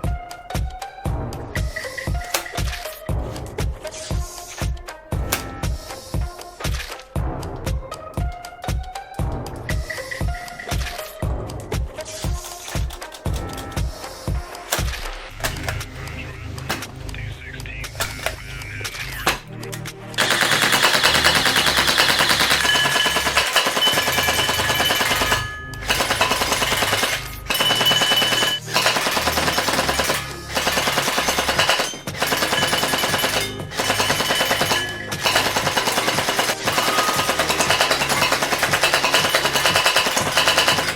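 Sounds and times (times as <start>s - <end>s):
background music: 0.0s - 40.9s
gel blaster firing bursts: 20.2s - 40.9s.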